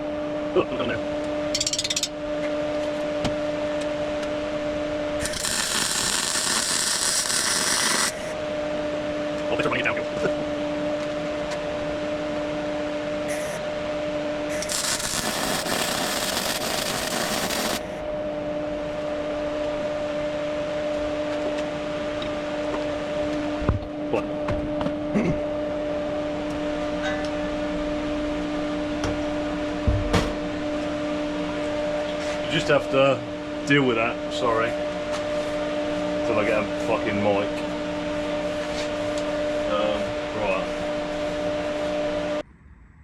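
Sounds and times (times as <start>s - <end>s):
welding set humming: 1.2s - 23.9s, 25.6s - 42.4s
welding arc hiss: 5.2s - 8.3s, 13.3s - 13.6s, 14.5s - 18.0s.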